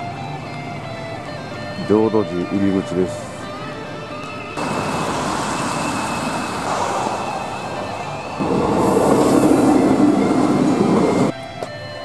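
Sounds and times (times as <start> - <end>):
freight train rushing past: 4.6 - 11.3
traffic on wet street: 4.6 - 11.3.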